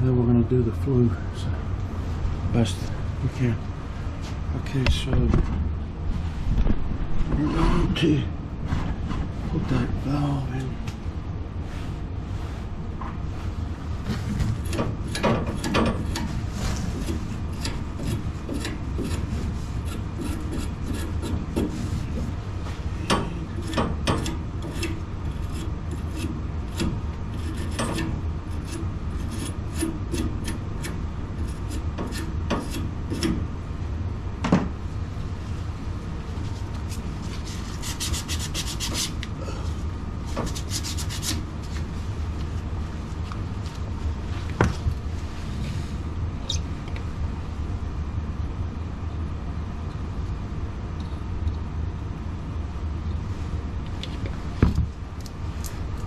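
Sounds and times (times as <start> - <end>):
scraping and rubbing on pipe fittings: 13.3 - 33.4, 36.3 - 39.3, 40.2 - 44.6.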